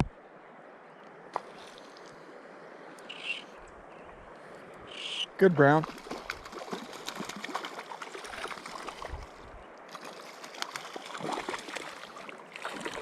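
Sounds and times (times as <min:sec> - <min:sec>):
river water running: 0:00.0 - 0:13.0
small splashes and drips: 0:05.8 - 0:13.0.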